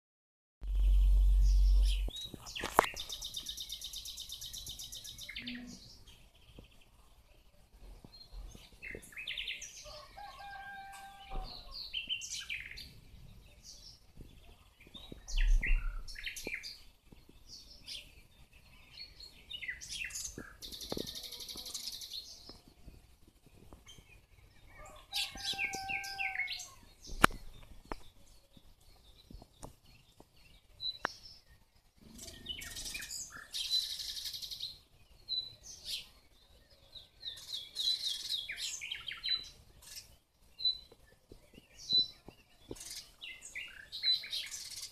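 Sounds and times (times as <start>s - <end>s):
low bump: 0.6s - 2.2s
songbirds singing and calling: 0.6s - 44.9s.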